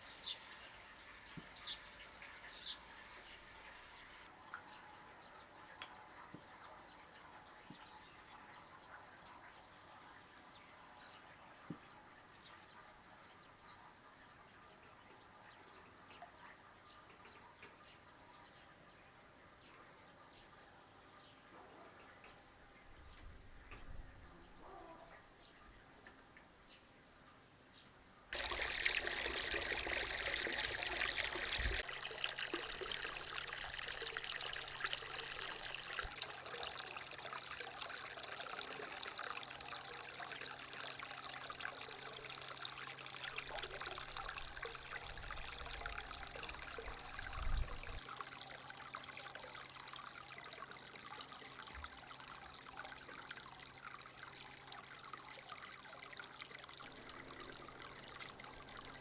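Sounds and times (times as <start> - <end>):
water running: 28.4 - 59.0.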